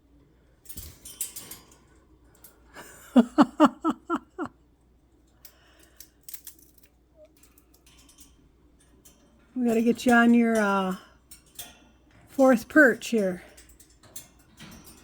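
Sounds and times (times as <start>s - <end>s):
beak and feet clicking on wire: 0.6s - 2.7s, 5.2s - 15.0s.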